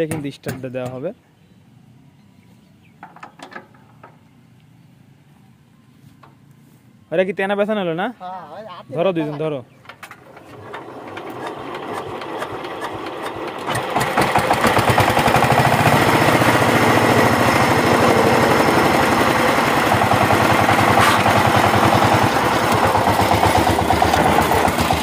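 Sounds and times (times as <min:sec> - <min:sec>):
diesel engine hand-cranked: 0:09.9 - 0:25.0
diesel engine knocking: 0:11.6 - 0:25.0.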